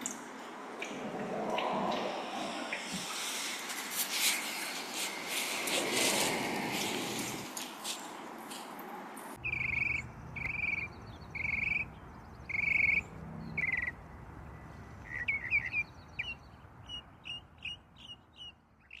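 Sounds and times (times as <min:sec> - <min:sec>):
songbird singing: 0:09.4 - 0:19.0.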